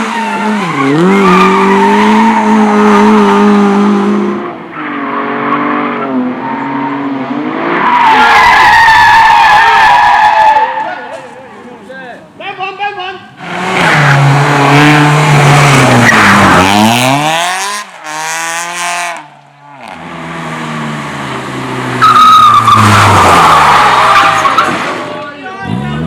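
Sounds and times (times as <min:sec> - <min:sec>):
race car engine revving: 0:00.0 - 0:08.2, 0:13.4 - 0:26.0
tyres skidding and squealing: 0:00.0 - 0:26.0.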